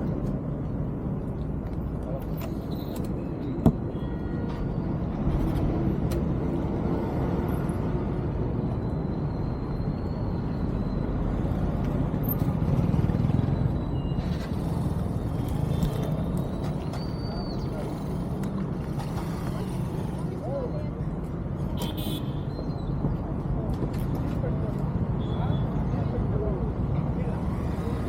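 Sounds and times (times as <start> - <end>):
vehicle engine and road noise: 0.0 - 28.0.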